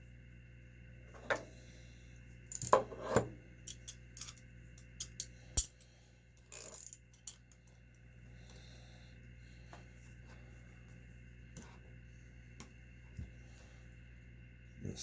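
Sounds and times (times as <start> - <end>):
metal parts clinking and tapping: 2.5 - 5.8, 6.4 - 7.6.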